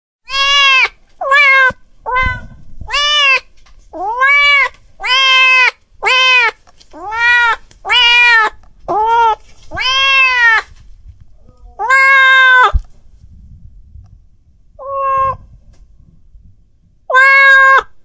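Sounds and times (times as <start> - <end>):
cat meowing: 0.3 - 10.7, 11.6 - 12.8, 14.8 - 15.5, 17.1 - 18.0.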